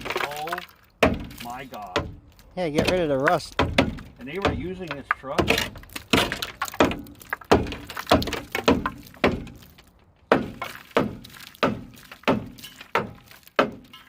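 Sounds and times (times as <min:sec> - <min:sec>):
hammer striking rusted metal: 0:01.0 - 0:14.0.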